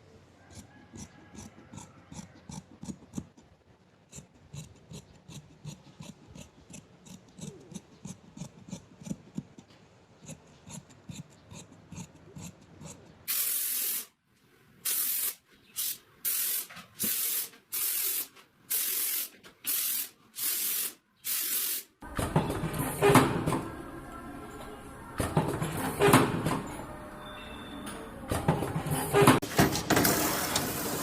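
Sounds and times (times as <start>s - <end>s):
short spray bursts: 13.3s - 14.1s, 14.8s - 22.0s.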